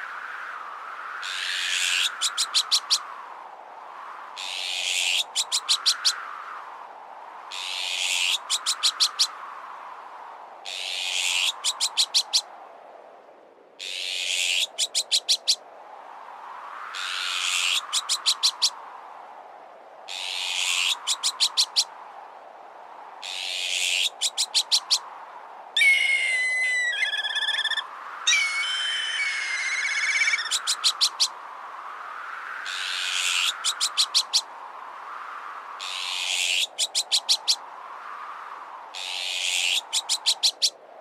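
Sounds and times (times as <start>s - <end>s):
wind noise: 0.0s - 41.0s
sharp chattering bird notes: 25.8s - 31.2s
harsh raspy bird alarm call: 25.8s - 31.3s.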